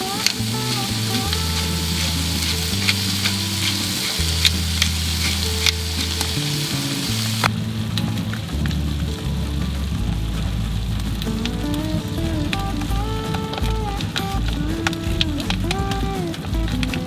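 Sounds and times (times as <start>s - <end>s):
steak sizzling in a pan: 0.0s - 8.1s
background music with low notes: 0.0s - 17.0s.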